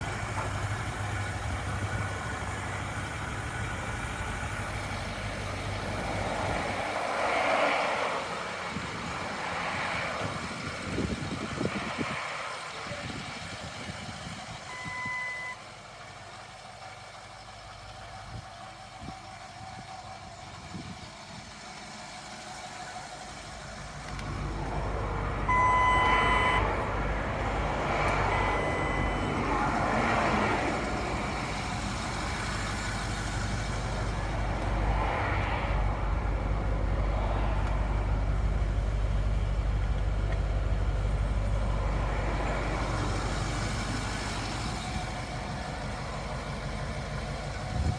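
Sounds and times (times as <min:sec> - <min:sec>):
diesel engine idling: 0:00.0 - 0:47.9
short electronic beeps: 0:14.7 - 0:15.6, 0:25.5 - 0:26.7, 0:28.3 - 0:29.3.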